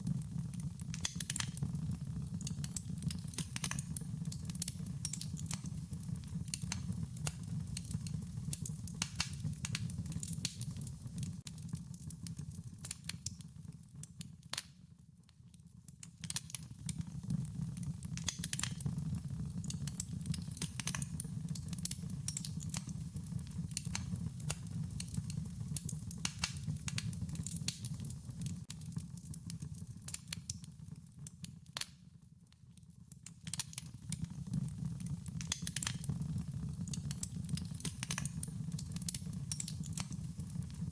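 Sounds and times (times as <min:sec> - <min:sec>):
wood fire crackling: 0:00.0 - 0:14.8, 0:15.8 - 0:32.0, 0:33.0 - 0:40.9.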